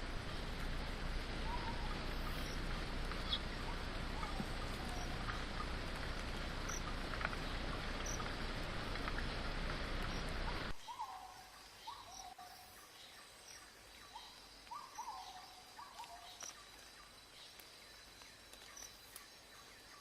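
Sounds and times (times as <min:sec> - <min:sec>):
rain falling in forest: 0:00.0 - 0:20.0
bird chirps: 0:10.8 - 0:17.6.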